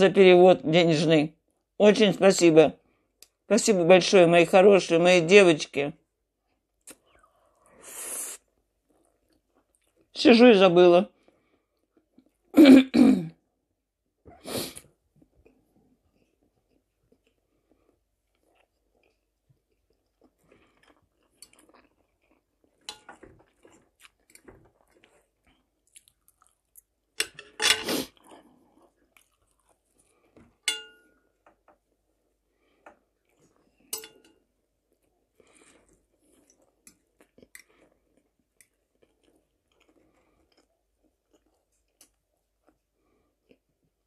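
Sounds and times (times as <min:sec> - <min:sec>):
person chewing food: 0:08.4 - 0:10.1, 0:11.1 - 0:12.5, 0:14.7 - 0:44.0
metal fork clicking on plate: 0:30.7 - 0:31.0, 0:34.0 - 0:34.4.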